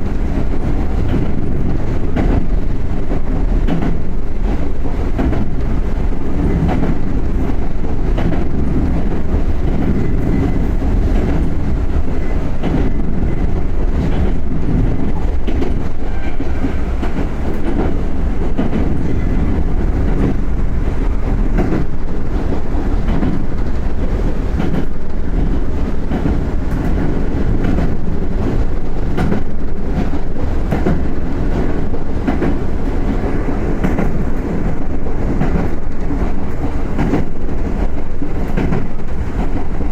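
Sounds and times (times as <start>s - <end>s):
train wheels and motors rumbling: 0.0s - 39.9s
wheels clacking over rails: 0.0s - 39.9s.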